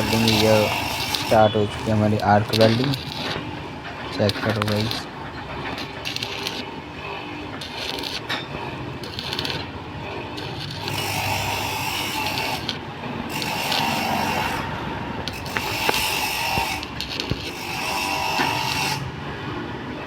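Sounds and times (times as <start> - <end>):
arc welding crackling and sizzling: 0.0 - 19.3
sharp clicks: 4.3 - 5.1.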